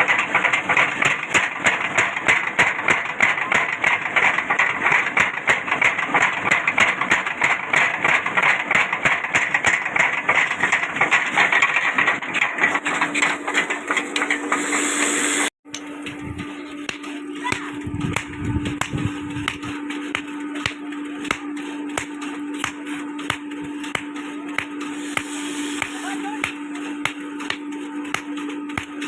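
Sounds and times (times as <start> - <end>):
workshop machine rattling and grinding: 0.0 - 29.0
steady low hum: 12.8 - 29.0.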